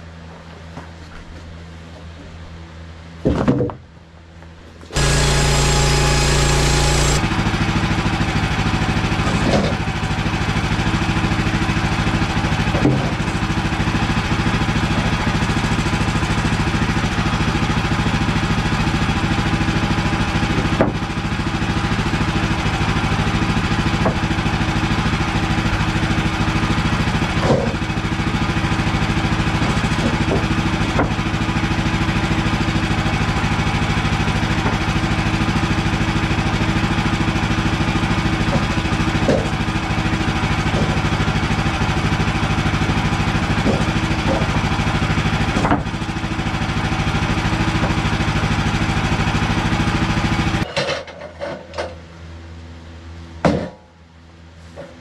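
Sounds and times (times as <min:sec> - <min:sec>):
sawmill engine running: 0:04.4 - 0:53.4.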